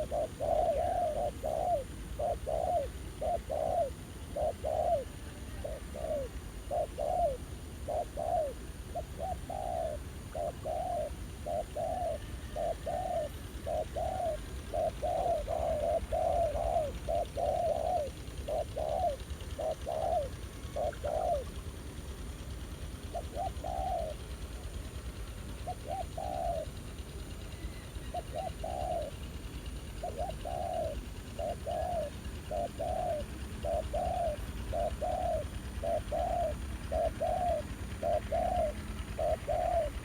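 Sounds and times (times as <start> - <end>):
doves cooing: 0.0 - 40.0.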